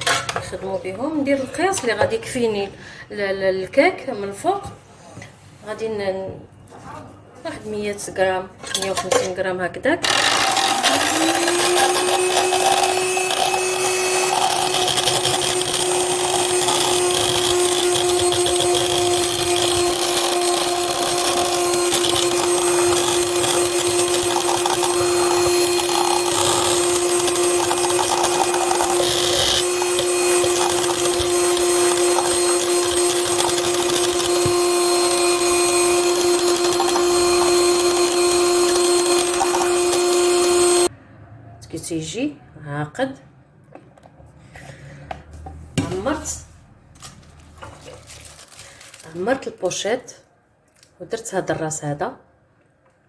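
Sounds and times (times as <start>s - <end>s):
electric mixer motor whining: 10.1s - 40.9s.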